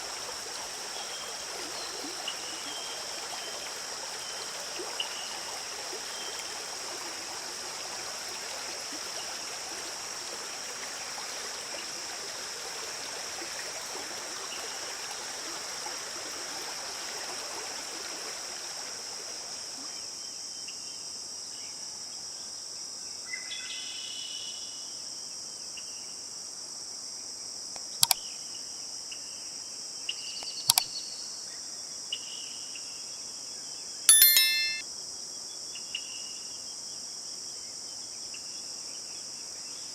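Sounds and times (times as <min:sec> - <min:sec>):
stream running: 0:00.0 - 0:19.4
sharp clicks: 0:27.8 - 0:28.2.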